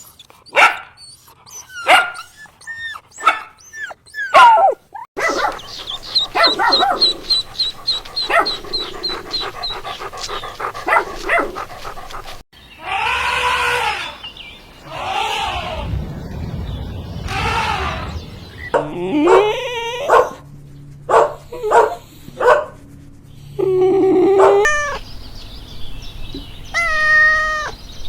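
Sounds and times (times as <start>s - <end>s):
dog barking and yipping: 0.5s - 12.4s, 18.7s - 20.4s, 21.1s - 22.8s, 24.4s - 25.0s
animal cries rising and falling: 12.8s - 14.2s, 14.8s - 16.0s, 17.2s - 18.4s, 26.8s - 27.8s.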